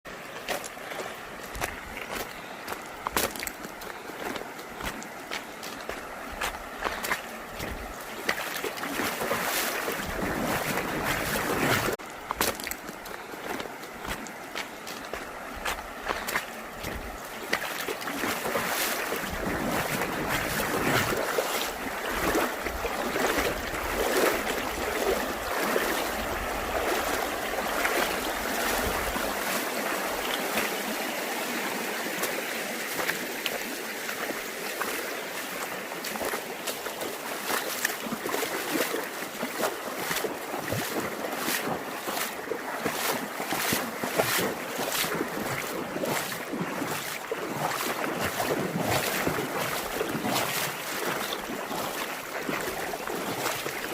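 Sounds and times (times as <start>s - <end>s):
stream water rushing and splashing: 0.1s - 53.9s
wind rumbling on microphone: 9.2s - 12.0s, 18.9s - 30.5s.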